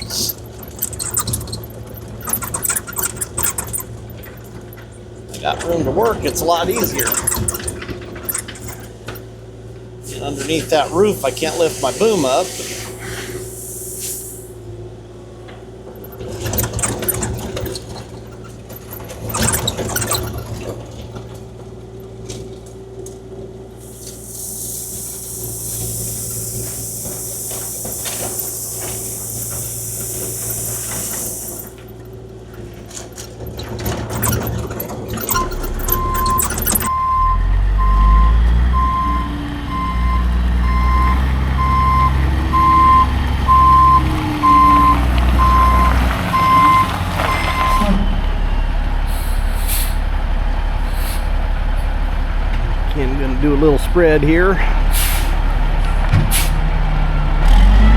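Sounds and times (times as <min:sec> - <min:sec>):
scrapes and clanks: 0:00.0 - 0:09.3, 0:15.9 - 0:23.2, 0:23.9 - 0:36.9
excavator diesel engine running: 0:00.0 - 0:57.9
heavier engine rumbling: 0:00.0 - 0:57.9
high hiss: 0:10.8 - 0:14.6, 0:23.9 - 0:31.7
reversing beeper: 0:35.2 - 0:50.6.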